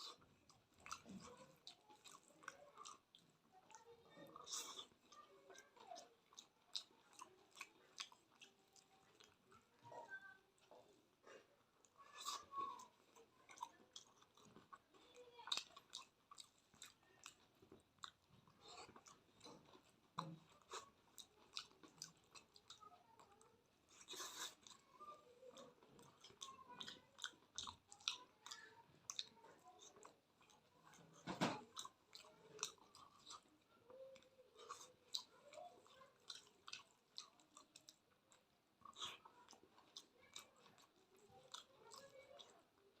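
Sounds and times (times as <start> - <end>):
person chewing food: 0.0 - 43.0
mouth clicks and smacks: 25.5 - 33.6.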